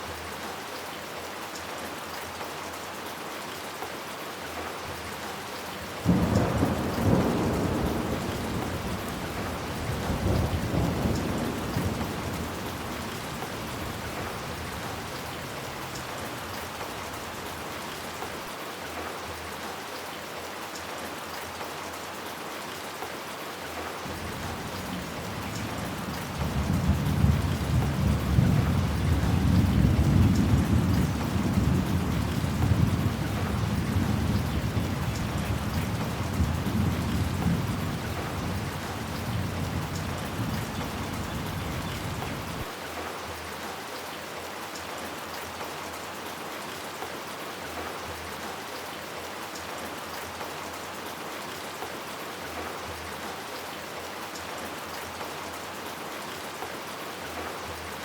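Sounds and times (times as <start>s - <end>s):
heavy rain falling: 0.0s - 58.0s
thunder rumbling: 6.0s - 14.4s.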